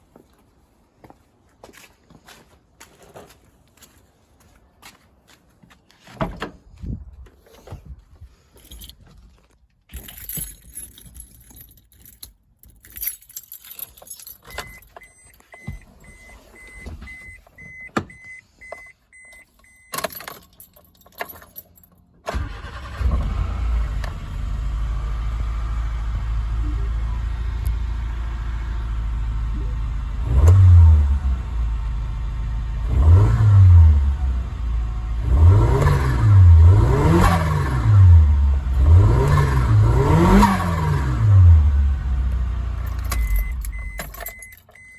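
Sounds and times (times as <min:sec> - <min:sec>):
keys jangling: 0:08.4 - 0:16.1, 0:19.4 - 0:22.1, 0:42.8 - 0:44.9
car warning chime beeping: 0:14.4 - 0:20.1, 0:43.0 - 0:44.9
car engine starting and running: 0:14.4 - 0:44.9.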